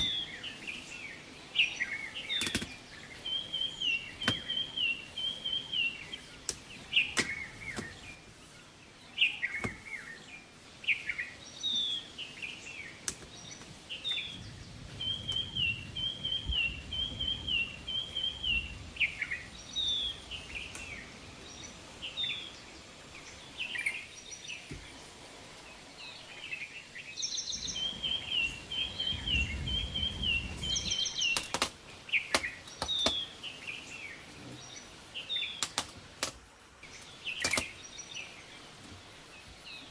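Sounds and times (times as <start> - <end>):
down-slurred whistled bird notes: 0.0 - 2.5, 3.1 - 8.3, 13.8 - 22.5, 26.4 - 31.5.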